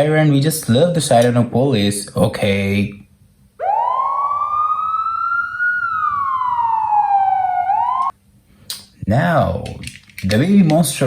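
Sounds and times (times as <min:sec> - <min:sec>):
toy siren wailing: 0:03.6 - 0:08.1.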